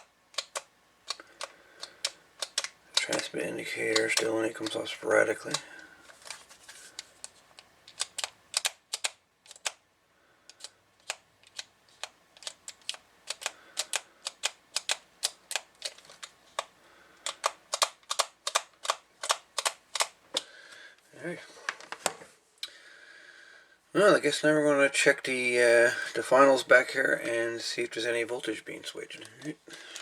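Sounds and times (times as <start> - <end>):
rapid sharp clicks: 0.0 - 4.8, 7.0 - 9.8, 10.5 - 20.2.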